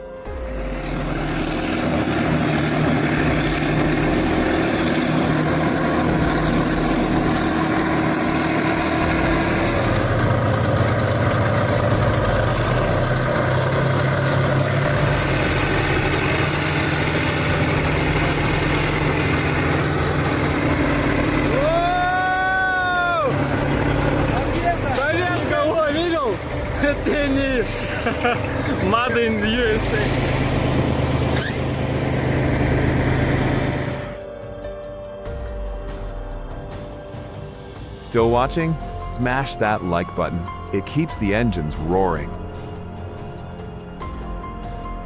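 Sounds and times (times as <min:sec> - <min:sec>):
loud rising tone: 0:00.0 - 0:45.0
tractor diesel engine under load: 0:00.0 - 0:45.0.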